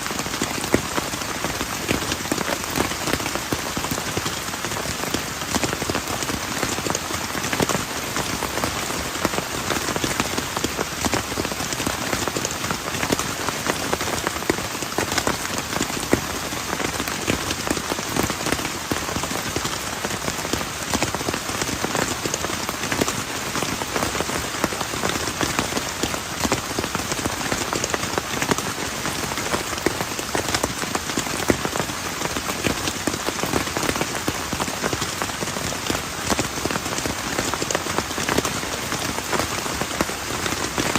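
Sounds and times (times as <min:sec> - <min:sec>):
heavy rain on plastic tarp: 0:00.0 - 0:40.9.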